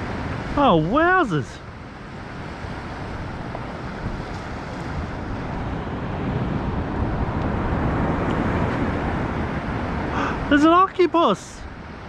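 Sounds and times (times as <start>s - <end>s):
wind buffeting microphone: 1.7s - 10.6s.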